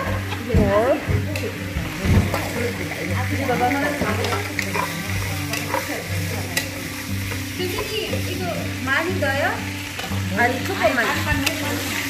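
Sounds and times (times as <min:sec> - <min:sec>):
background music: 0:00.0 - 0:12.0
food sizzling in a pan: 0:00.0 - 0:12.0
wooden spatula stirring: 0:01.7 - 0:08.4.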